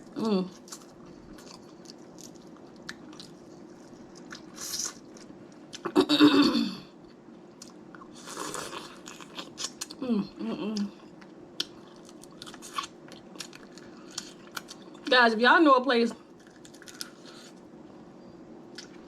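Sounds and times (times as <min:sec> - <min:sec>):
person humming: 0:10.0 - 0:10.9.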